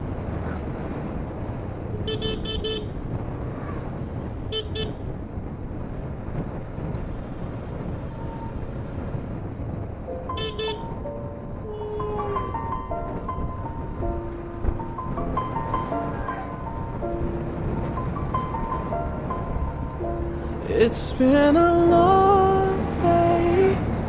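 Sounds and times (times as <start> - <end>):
road traffic rumble: 0.0 - 24.0
vehicle horn beeping: 2.0 - 3.0, 4.5 - 5.0, 10.3 - 11.0.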